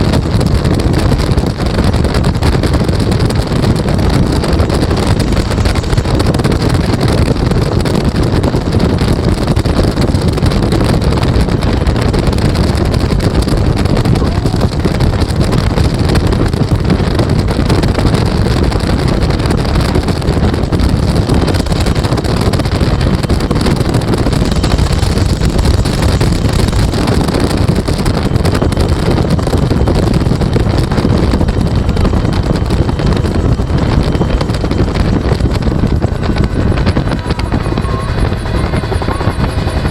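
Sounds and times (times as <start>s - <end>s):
helicopter rotor and turbine: 0.0s - 39.9s
wind buffeting microphone: 0.0s - 39.9s.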